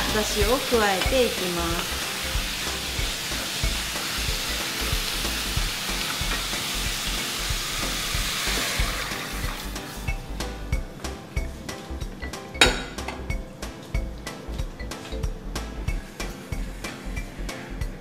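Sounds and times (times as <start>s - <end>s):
vegetables sizzling in oil: 0.0s - 10.7s
stock being poured: 1.9s - 10.1s.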